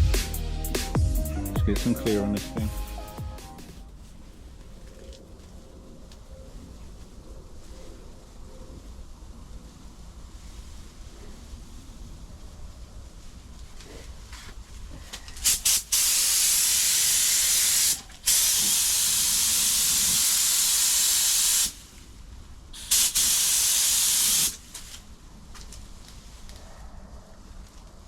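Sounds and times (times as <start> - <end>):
paint spray gun hissing: 15.4 - 22.0, 22.8 - 25.0.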